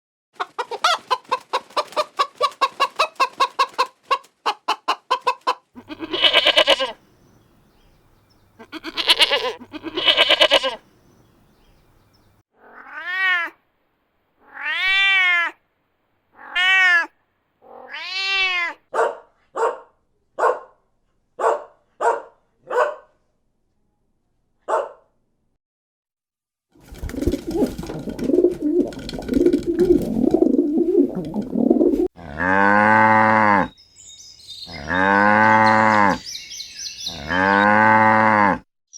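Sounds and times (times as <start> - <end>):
chicken clucking: 0.4 - 7.0
cat meowing: 5.8 - 7.0, 8.6 - 10.8, 12.6 - 13.6, 14.4 - 15.6, 16.4 - 17.1, 17.7 - 18.8
harsh animal calls: 5.8 - 7.0, 8.6 - 10.8, 34.6 - 38.6
low animal call: 5.8 - 7.0, 34.6 - 36.3, 37.1 - 38.6.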